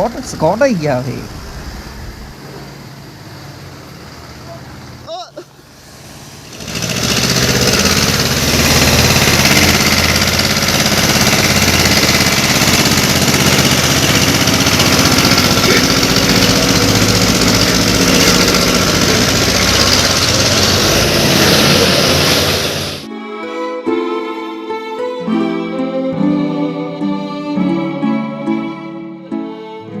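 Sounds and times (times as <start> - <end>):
tractor diesel engines under load: 0.0 - 23.1.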